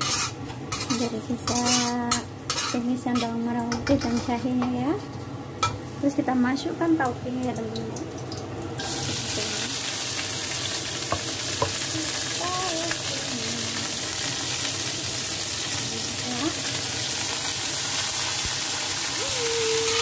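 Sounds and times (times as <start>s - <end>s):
spatula tossing food in wok: 0.0s - 1.9s
bean sprouts sizzling in a wok: 0.0s - 7.4s, 8.3s - 20.0s.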